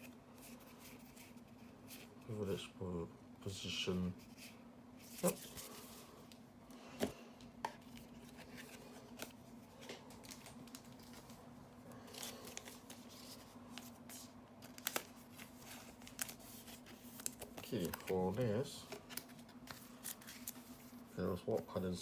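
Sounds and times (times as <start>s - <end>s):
trading cards clicking and rustling: 7.0s - 20.8s.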